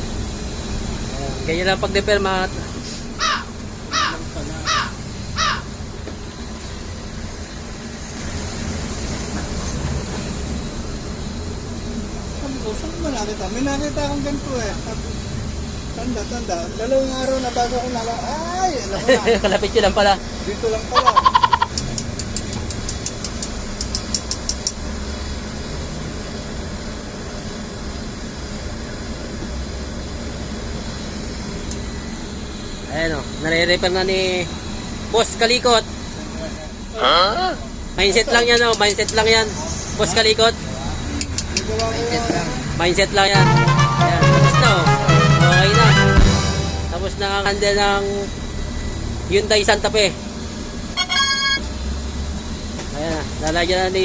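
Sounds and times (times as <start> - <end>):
vehicle engine idling: 0.0 - 43.3
bird harsh calls: 3.1 - 5.8, 21.0 - 21.9
sharp high clicks: 21.6 - 24.8.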